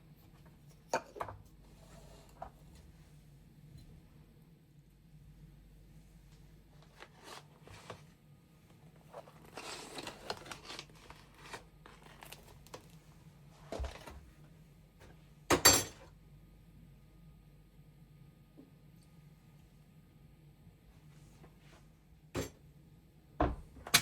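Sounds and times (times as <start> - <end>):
rustling and crinkling: 6.3 - 14.5.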